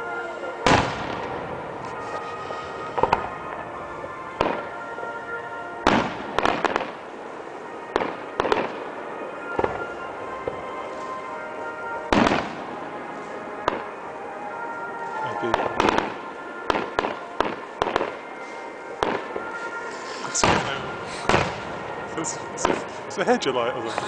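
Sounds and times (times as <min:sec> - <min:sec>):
music: 0:00.0 - 0:24.0
fireworks bangs: 0:00.6 - 0:24.0.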